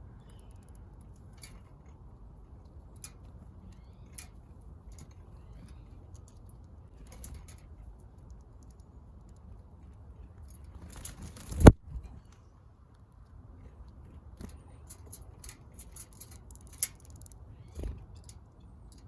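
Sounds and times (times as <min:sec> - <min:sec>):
wings fluttering: 0:10.7 - 0:12.1.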